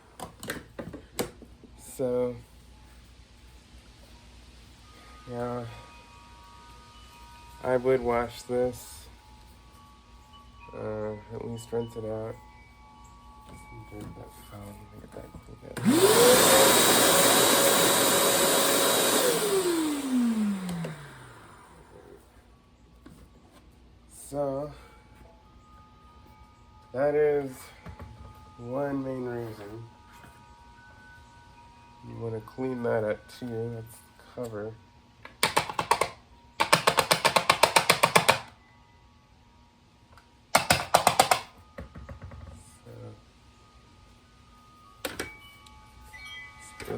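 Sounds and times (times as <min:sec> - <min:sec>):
vacuum motor whine: 0:15.6 - 0:22.2.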